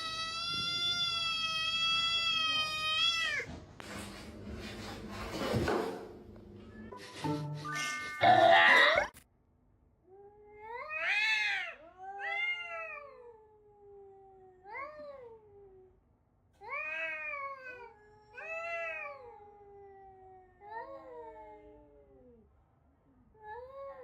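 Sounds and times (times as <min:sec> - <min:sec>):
cat yowling: 0:00.0 - 0:03.5, 0:08.1 - 0:09.2, 0:10.4 - 0:15.9.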